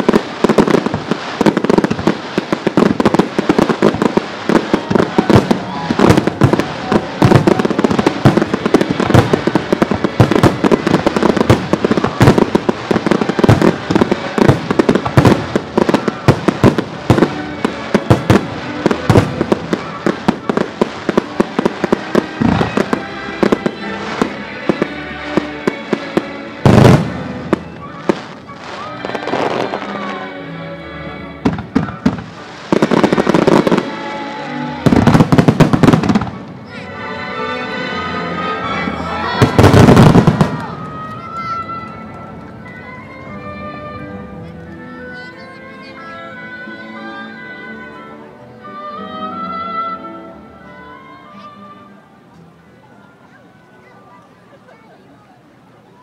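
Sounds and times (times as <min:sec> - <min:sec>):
fireworks bursting and crackling: 0:00.0 - 0:30.4, 0:31.4 - 0:36.8, 0:38.4 - 0:43.4
music: 0:00.0 - 0:54.3.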